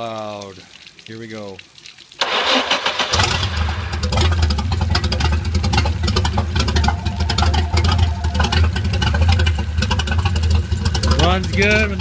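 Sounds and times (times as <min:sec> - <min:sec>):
marine engine idling: 0:03.2 - 0:12.0.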